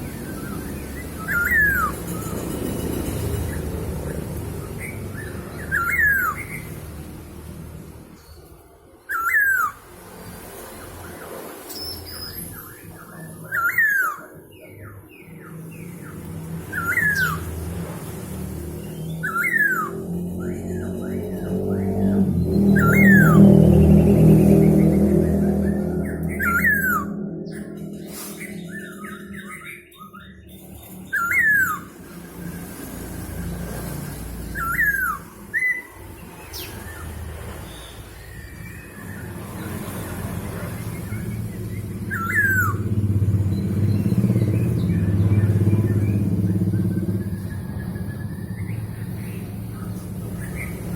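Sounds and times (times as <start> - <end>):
bird whistled calls: 1.2 - 2.2, 19.2 - 20.0, 26.0 - 31.9, 34.5 - 36.0, 42.0 - 42.9
bird calling ringing notes: 22.6 - 32.0, 41.8 - 48.9.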